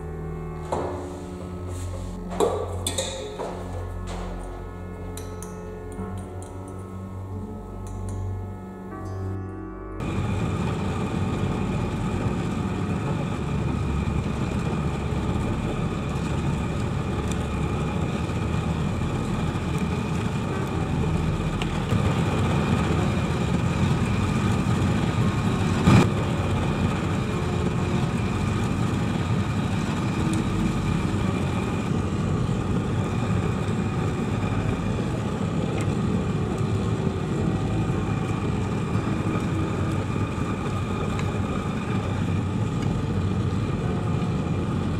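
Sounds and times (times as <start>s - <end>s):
forge furnace rushing: 10.0s - 44.9s.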